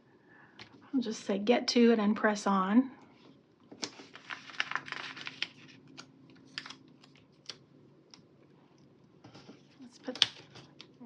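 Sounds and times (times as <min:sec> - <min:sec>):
paper stickers peeling and crinkling: 0:03.7 - 0:08.2.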